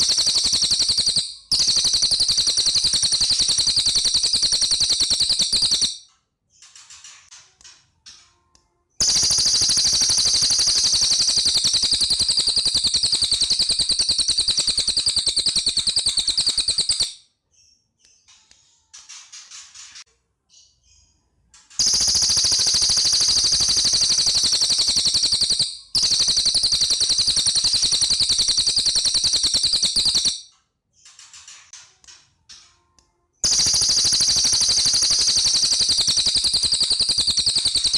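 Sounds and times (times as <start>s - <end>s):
bird rapid high trills: 0.0s - 6.0s, 9.0s - 17.2s, 21.8s - 30.4s, 33.4s - 37.9s.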